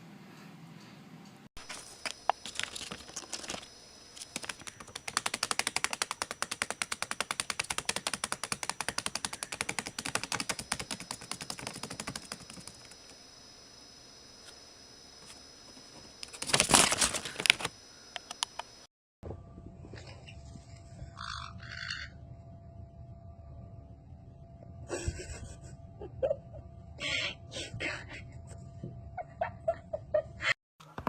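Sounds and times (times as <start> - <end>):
rapid sharp clicks: 2.0 - 13.2.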